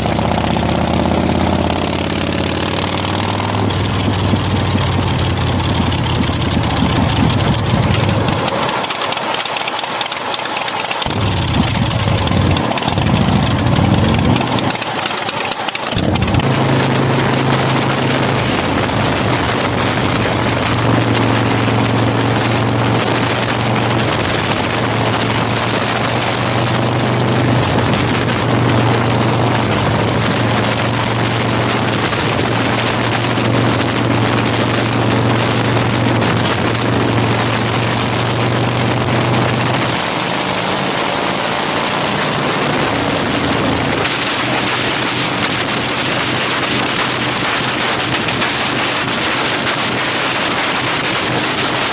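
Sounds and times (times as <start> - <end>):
motorcycle engine cruising: 0.0 - 51.9
wind rush on microphone: 5.8 - 8.4.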